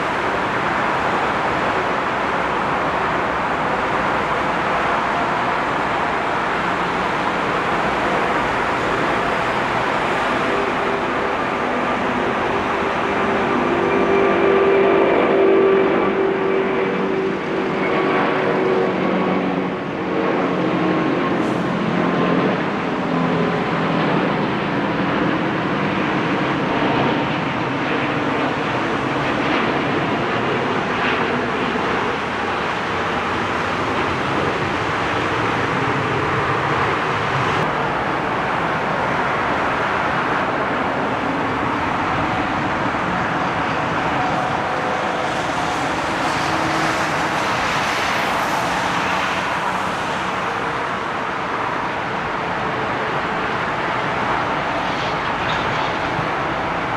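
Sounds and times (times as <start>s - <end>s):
rushing airflow: 28.6s - 56.9s.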